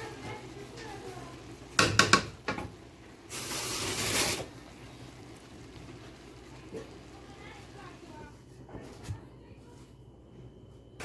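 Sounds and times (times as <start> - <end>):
cooking pot and utensils clanking: 0.0 - 4.5.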